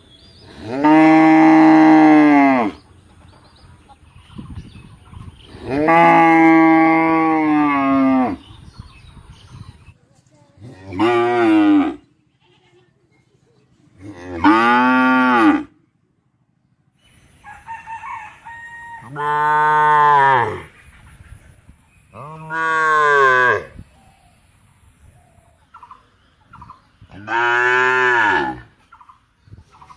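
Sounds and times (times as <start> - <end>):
cow mooing: 14.1 - 15.7, 22.2 - 23.7, 27.2 - 28.7.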